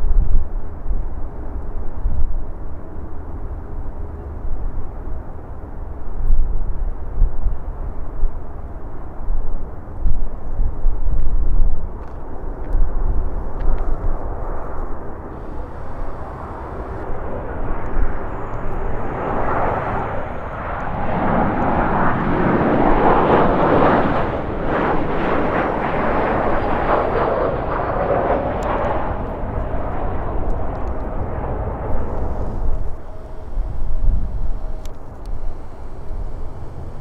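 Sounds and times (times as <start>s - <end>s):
airliner engine noise: 0.0s - 37.0s
wind buffeting microphone: 10.0s - 37.0s
faint high whine: 13.2s - 37.0s.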